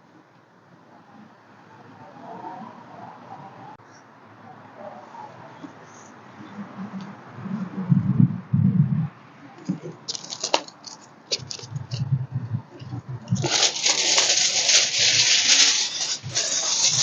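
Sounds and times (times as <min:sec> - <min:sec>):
aluminium foil crinkling: 0:09.7 - 0:12.0, 0:12.8 - 0:17.0.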